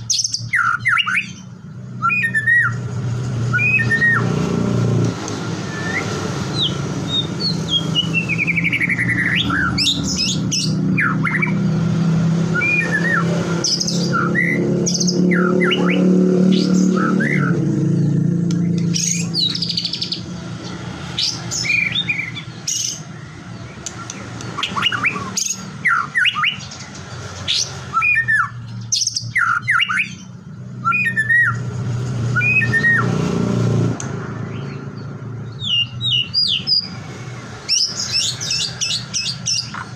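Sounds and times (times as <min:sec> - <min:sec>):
bird singing varied whistles: 0:00.0 - 0:01.4, 0:02.0 - 0:02.8, 0:03.5 - 0:04.3, 0:05.6 - 0:11.6, 0:12.5 - 0:17.6, 0:24.0 - 0:26.7, 0:27.6 - 0:31.6, 0:32.3 - 0:33.1, 0:35.5 - 0:36.9.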